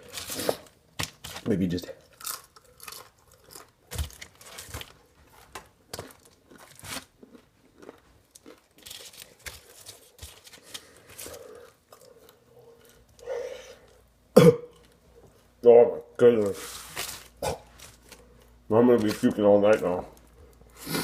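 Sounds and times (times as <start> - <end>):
paper wrappers crinkling: 2.9 - 7.2, 8.3 - 11.9, 16.3 - 20.4.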